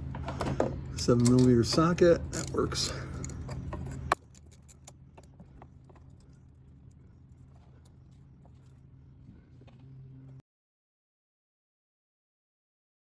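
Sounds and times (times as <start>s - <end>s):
low steady hum: 0.0s - 10.4s
tools ticking and tapping: 1.0s - 8.0s.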